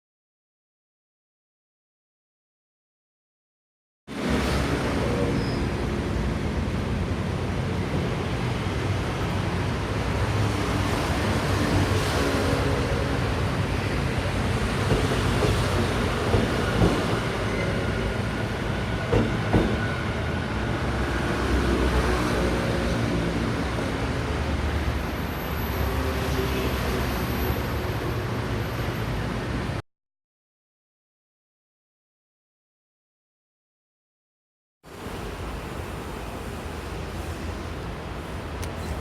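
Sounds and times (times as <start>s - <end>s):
electric train rumble and hum: 4.2s - 29.8s.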